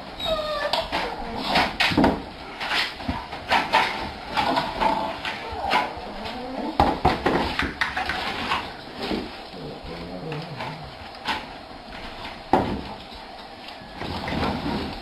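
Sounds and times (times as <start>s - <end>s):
dog whining and yelping: 0.1s - 1.6s.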